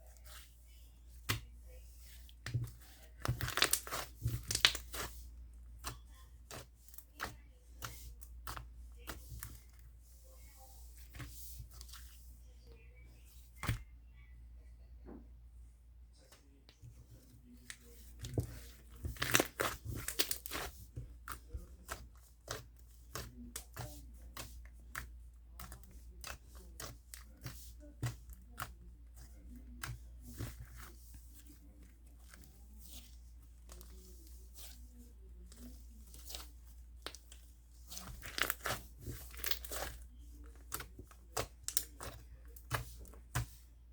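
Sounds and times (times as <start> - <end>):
slime squishing and popping: 3.2 - 5.1, 18.6 - 20.7, 37.9 - 40.0.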